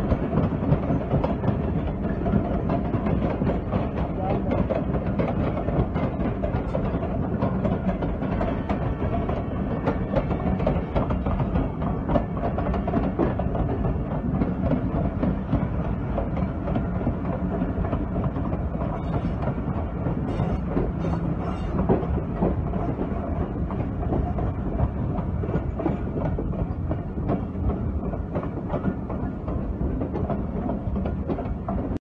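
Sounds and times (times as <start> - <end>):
train running gear rumble: 0.0 - 32.0
wheels clicking over rail joints: 0.0 - 32.0.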